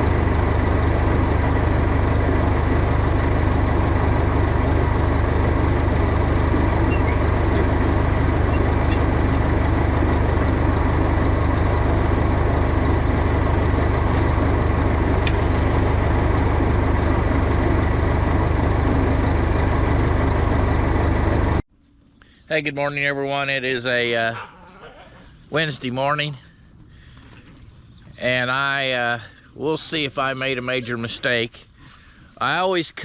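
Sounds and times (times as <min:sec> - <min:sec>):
tractor engine droning steadily: 0:00.0 - 0:21.7.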